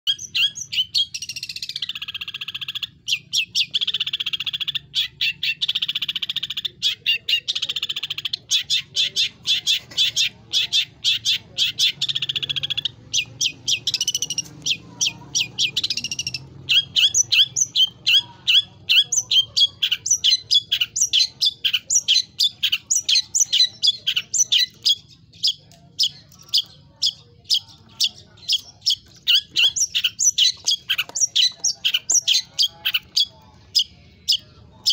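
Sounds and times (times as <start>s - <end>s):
shrike singing: 0.1s - 34.9s.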